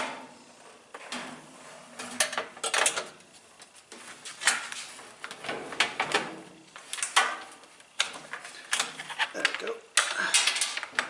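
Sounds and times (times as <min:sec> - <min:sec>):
metal parts clattering and scraping: 0:10.0 - 0:10.9.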